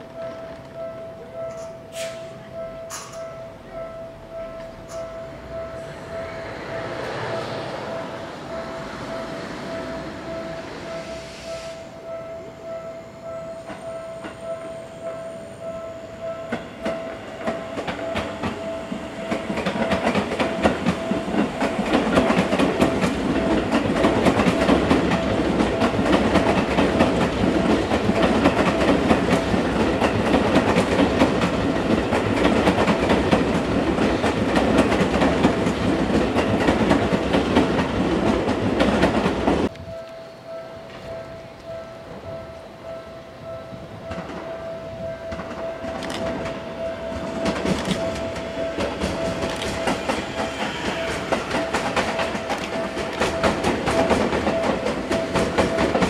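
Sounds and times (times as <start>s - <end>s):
electric train running past: 0.0s - 56.0s
wheels clacking over rail joints: 16.5s - 39.7s, 45.3s - 56.0s.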